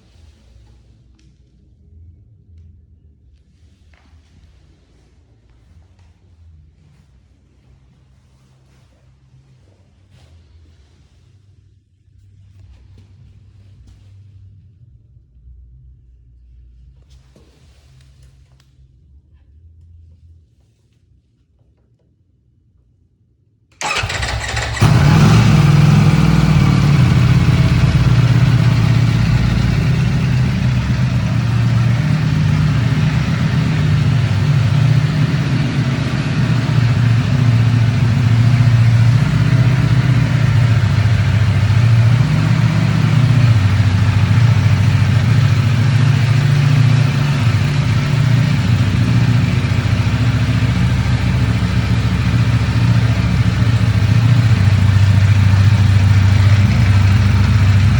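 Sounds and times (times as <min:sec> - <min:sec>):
starter motor cranking: 0:23.8 - 0:28.2
motorcycle engine idling: 0:23.8 - 0:57.9.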